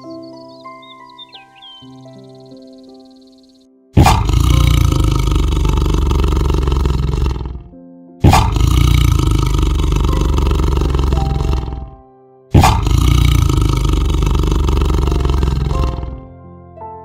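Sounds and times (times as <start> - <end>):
soft music: 0.0 - 17.0
large animal roaring: 4.0 - 16.3.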